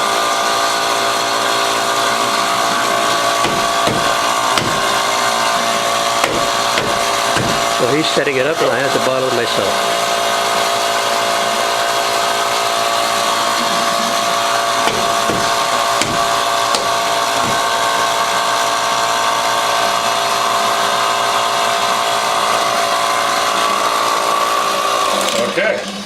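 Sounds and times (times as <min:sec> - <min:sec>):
machinery humming: 0:00.0 - 0:26.0.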